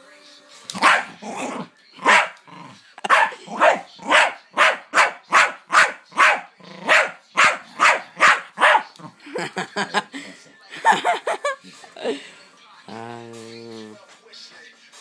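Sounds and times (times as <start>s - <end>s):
dog barking: 0.8s - 2.4s, 3.0s - 9.0s.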